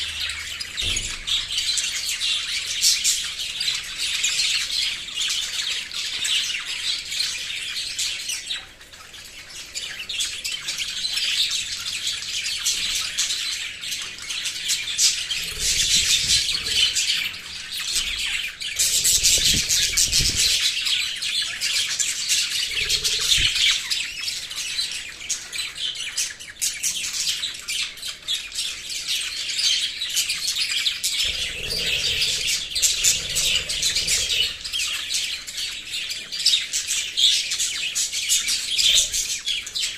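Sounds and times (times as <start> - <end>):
small parrots chirping: 8.8 - 39.9.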